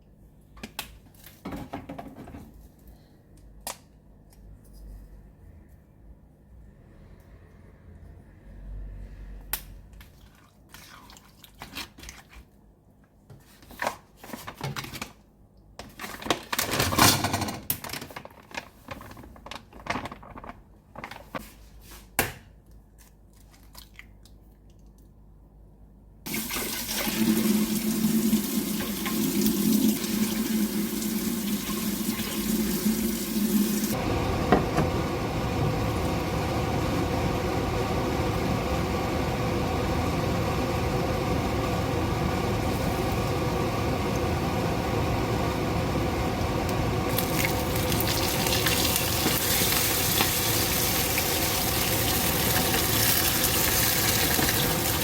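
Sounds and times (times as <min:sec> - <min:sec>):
tap water running into sink: 0:26.3 - 0:34.9, 0:47.1 - 0:55.0
steady hum: 0:32.4 - 0:53.5.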